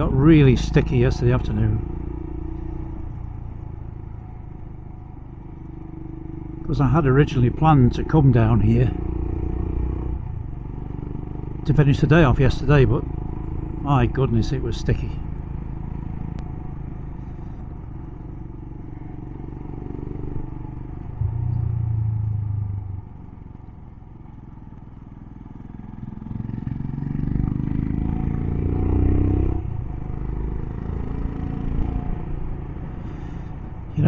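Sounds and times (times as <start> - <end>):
road noise: 0.0 - 34.0
motorcycle engine running: 15.2 - 34.0.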